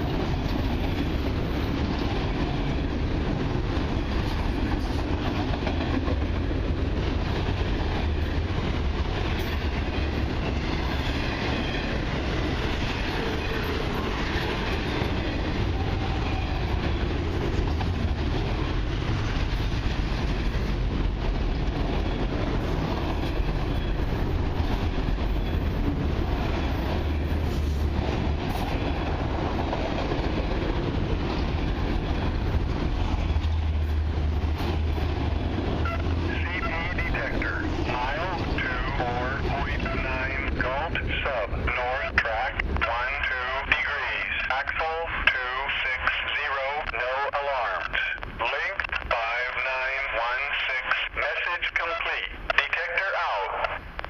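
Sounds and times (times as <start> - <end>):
freight cars rolling on rails: 0.0 - 46.8.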